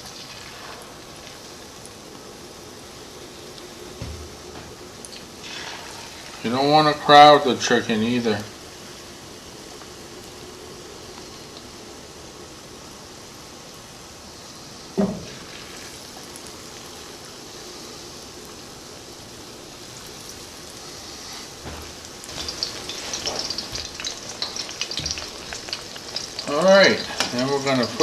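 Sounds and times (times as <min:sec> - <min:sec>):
chicken frying in oil: 0:00.0 - 0:04.4, 0:05.0 - 0:28.0
brief clunk: 0:15.0 - 0:15.3.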